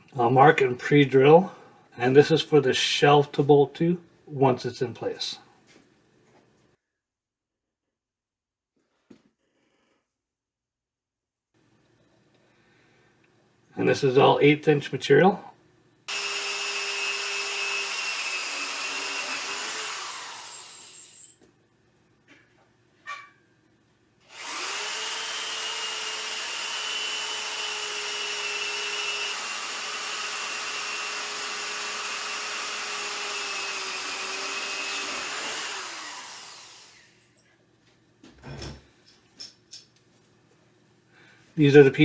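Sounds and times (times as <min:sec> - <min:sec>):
electric drill drilling steel: 0:16.1 - 0:21.4, 0:24.3 - 0:37.3.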